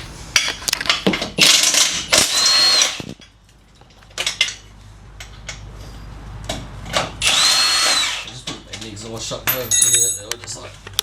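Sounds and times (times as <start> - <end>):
cordless power tool whining: 2.1 - 3.2, 7.2 - 8.3.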